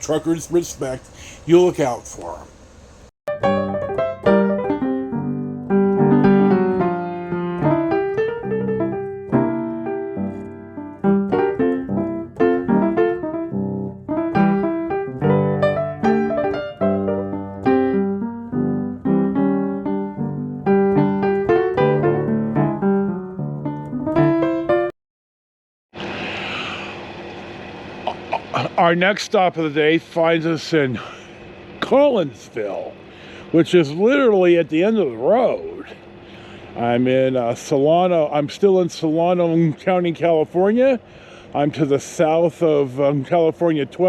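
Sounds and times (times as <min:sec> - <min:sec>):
solo piano music: 0:03.3 - 0:25.0.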